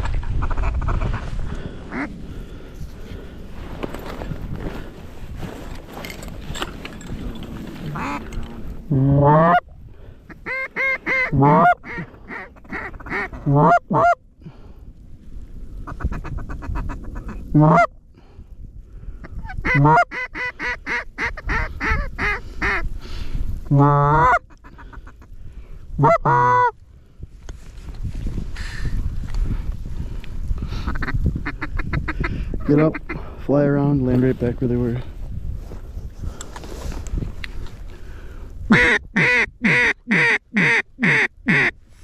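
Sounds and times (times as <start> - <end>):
goose clucking and honking: 0.0 - 1.2, 7.7 - 9.7, 10.3 - 14.2, 15.8 - 17.9, 19.4 - 22.8, 23.6 - 25.3, 26.0 - 26.8, 38.7 - 41.8
wind rumbling: 0.0 - 42.0.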